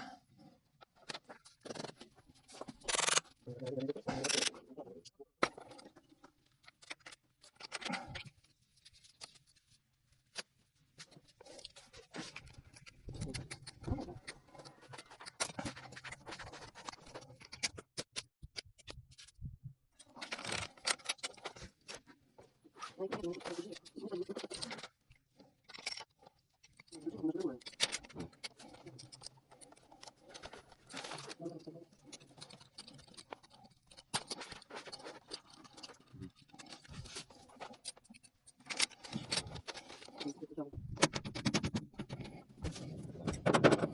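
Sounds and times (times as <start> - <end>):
small metal clicks and scrapes: 0.8 - 4.7, 5.4 - 19.4, 20.0 - 43.9
metal tools clicking and scraping: 2.8 - 4.7, 23.2 - 40.5.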